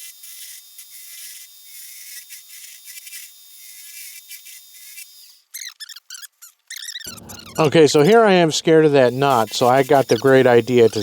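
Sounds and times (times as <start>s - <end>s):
short squeaks: 5.4s - 8.2s
lathe tool scraping hiss: 7.1s - 11.0s.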